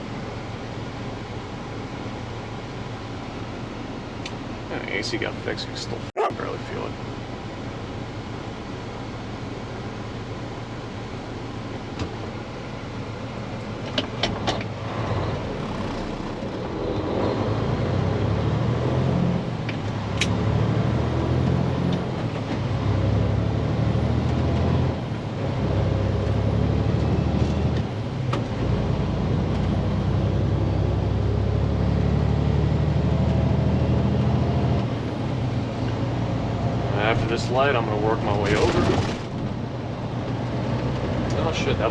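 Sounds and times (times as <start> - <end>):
diesel truck engine under load: 32.1 - 41.9.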